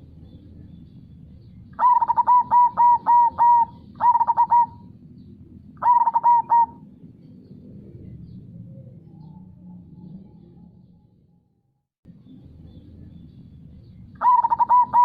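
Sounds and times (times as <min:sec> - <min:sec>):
dove cooing: 0:01.8 - 0:05.0, 0:05.8 - 0:07.0, 0:14.2 - 0:15.0.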